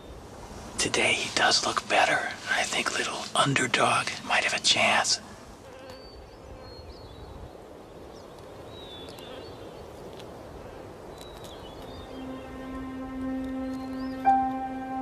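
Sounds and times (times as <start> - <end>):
music with held low note: 12.0 - 15.0.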